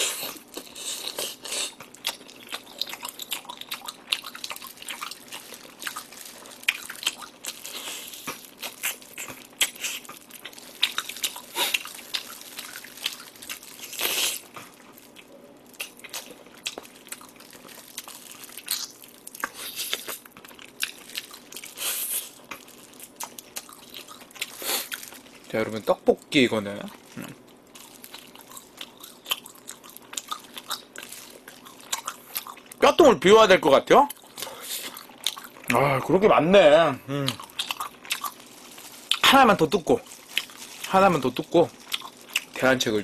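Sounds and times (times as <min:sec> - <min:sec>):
man chewing and biting: 0:00.0 - 0:25.3, 0:26.9 - 0:32.8, 0:37.3 - 0:39.2, 0:41.7 - 0:42.5.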